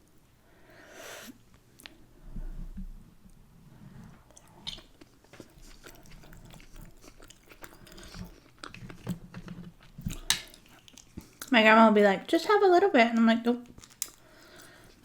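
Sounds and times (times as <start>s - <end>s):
close-up chewing: 4.2s - 11.5s, 13.6s - 15.0s.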